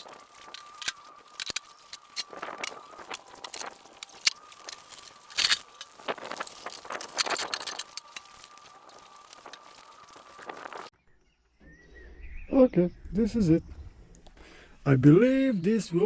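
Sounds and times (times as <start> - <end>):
scrapes knocks and crunches: 0.0 - 10.9.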